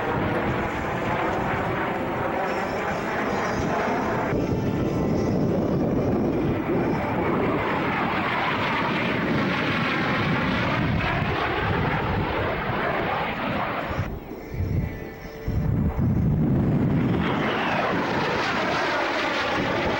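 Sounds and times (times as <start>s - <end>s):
airplane flying by: 0.0s - 19.9s.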